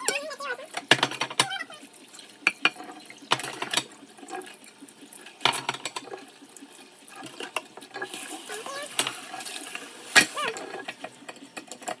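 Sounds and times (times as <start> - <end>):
dishes clinking in water: 2.4 - 4.8, 5.4 - 6.3.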